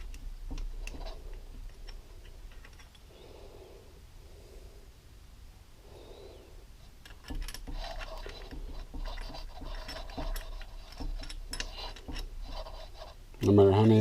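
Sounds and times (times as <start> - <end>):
metal clicking and scraping: 0.0 - 3.1, 7.0 - 14.0.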